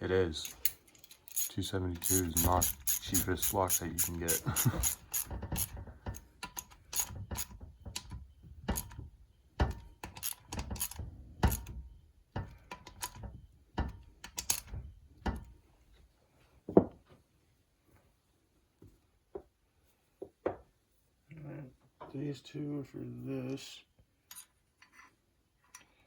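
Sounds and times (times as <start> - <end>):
tools and metal parts clicking: 0.3 - 15.5, 24.2 - 26.0.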